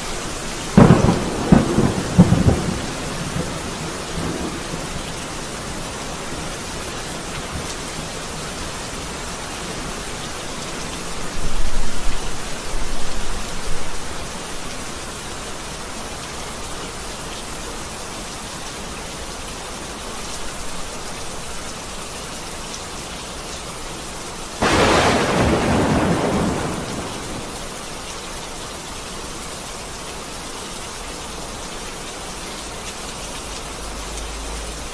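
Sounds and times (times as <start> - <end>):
steady rain: 0.0 - 34.9
loud thunderclap: 0.8 - 4.7, 24.6 - 27.7
thunder rolling: 0.8 - 4.8, 24.6 - 27.7.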